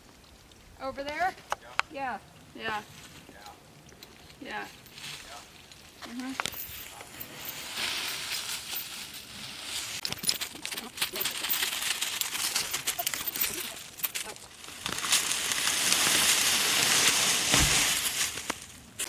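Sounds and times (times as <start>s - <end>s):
dry brush rustling and snapping: 7.6s - 19.0s.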